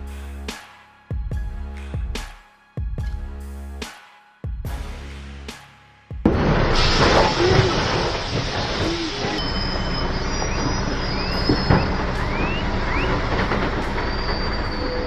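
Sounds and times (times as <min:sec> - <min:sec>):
heavy vehicle engine running: 0:06.4 - 0:15.0
short rising chirps: 0:08.8 - 0:15.0.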